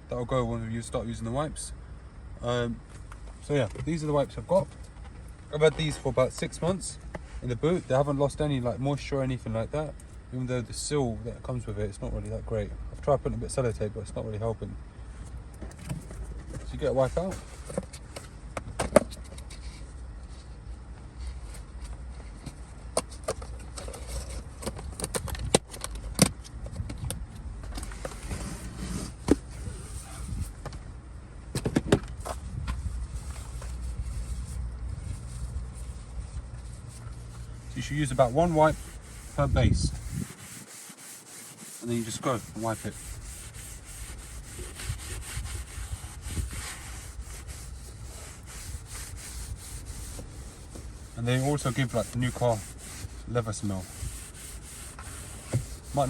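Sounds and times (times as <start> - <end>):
low steady hum: 0.0 - 56.0
wipe scrubbing leather seat: 28.2 - 30.5, 32.8 - 56.0.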